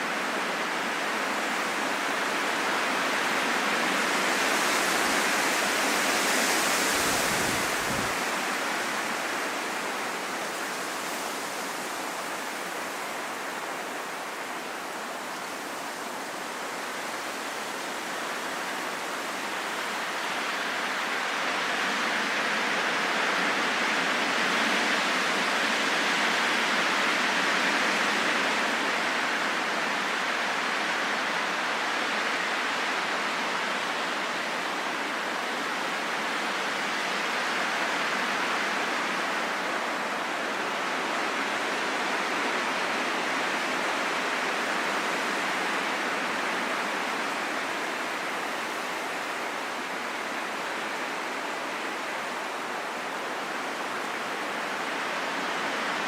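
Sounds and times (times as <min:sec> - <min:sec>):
wind blowing: 0:05.1 - 0:13.5.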